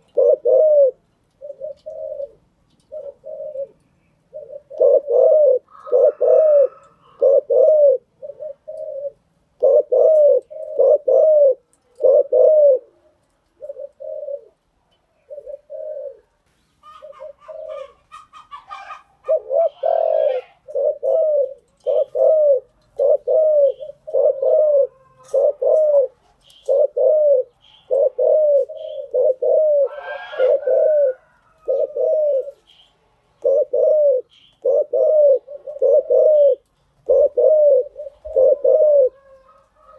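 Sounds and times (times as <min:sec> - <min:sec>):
dove cooing: 0:00.0 - 0:39.9
bird chirping: 0:15.1 - 0:39.6.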